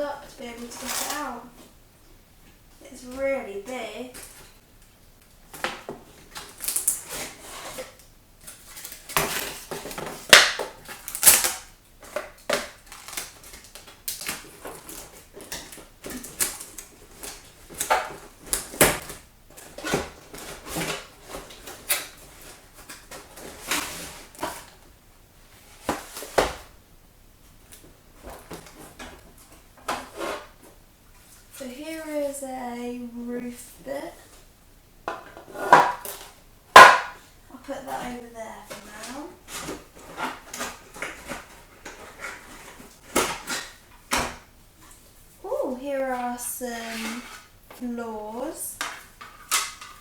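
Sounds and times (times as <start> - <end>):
plastic parts scraping and clattering: 0.5 - 1.7, 5.5 - 24.9, 27.8 - 31.7, 37.9 - 45.2, 46.8 - 47.6, 48.7 - 50.0
cardboard packaging rustling: 5.6 - 26.8, 37.8 - 44.1.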